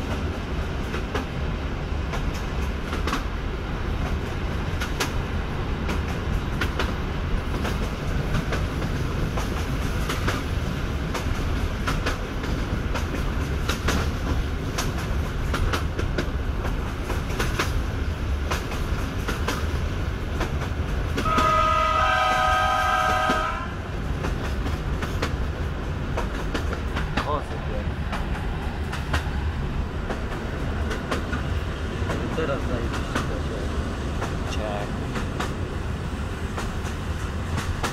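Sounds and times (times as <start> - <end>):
rail joint clicks: 0.0 - 37.9
train rumbling: 0.0 - 37.9
train horn: 21.2 - 23.8.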